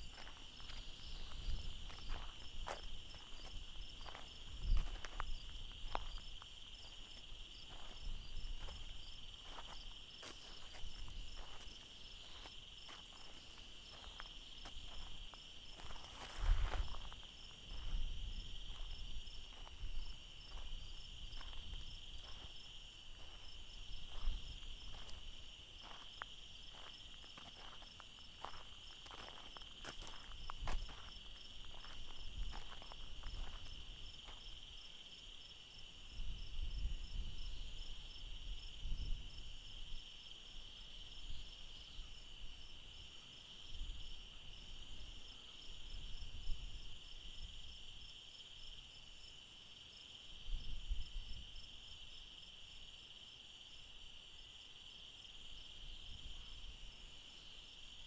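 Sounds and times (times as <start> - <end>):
footsteps on gravel: 0.0 - 34.5
crickets and insects trilling: 0.0 - 58.0.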